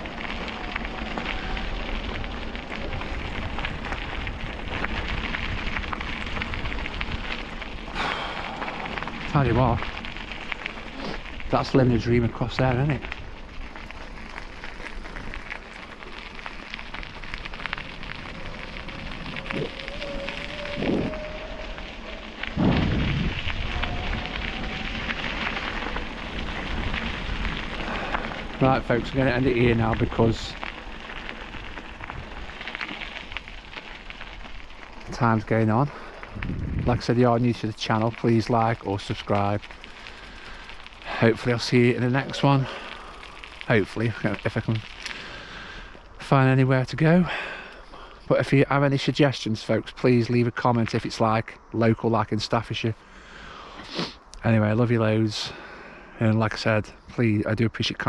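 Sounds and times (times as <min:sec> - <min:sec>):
wind buffeting microphone: 0:00.0 - 0:39.1
tyres rolling over rough path: 0:00.0 - 0:58.0.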